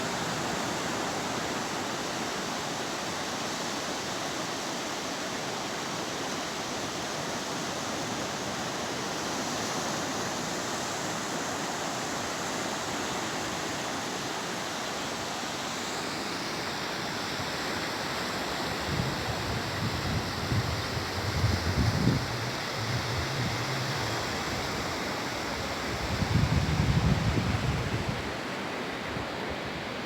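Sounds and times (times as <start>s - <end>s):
sea surf washing onto beach: 5.2s - 30.0s
wind buffeting microphone: 18.7s - 28.4s.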